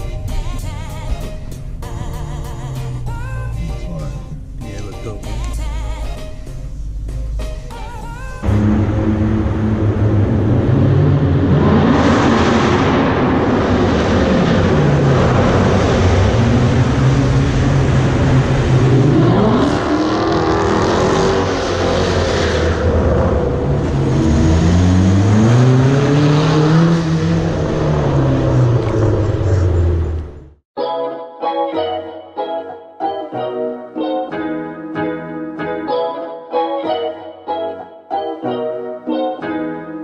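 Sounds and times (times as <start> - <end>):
car engine revving: 0.0 - 7.7, 8.4 - 30.6.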